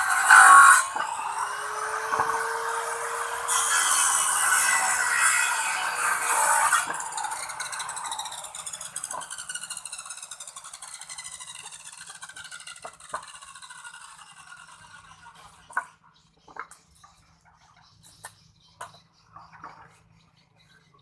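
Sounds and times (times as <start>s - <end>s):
power tool motor winding down: 0.0s - 15.4s.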